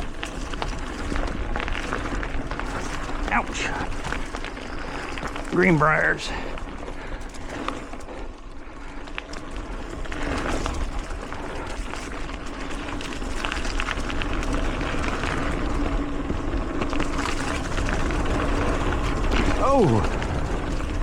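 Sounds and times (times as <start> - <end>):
bike clicks and rattles: 0.0 - 21.0
bike tyres on dirt: 0.0 - 21.0
wind rumble on microphone: 9.5 - 21.0.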